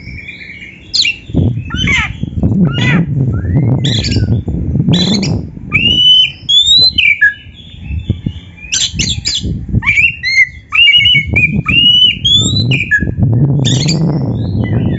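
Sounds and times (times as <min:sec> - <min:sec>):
bird singing whistled phrases: 0:00.0 - 0:14.9.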